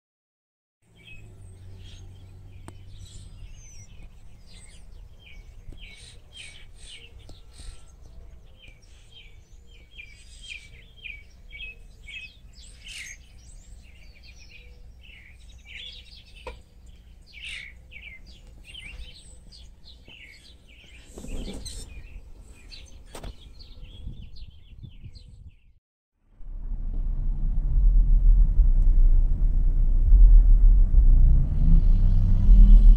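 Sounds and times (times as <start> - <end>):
small birds chirping: 0.9 - 25.8
low steady hum: 26.3 - 32.9.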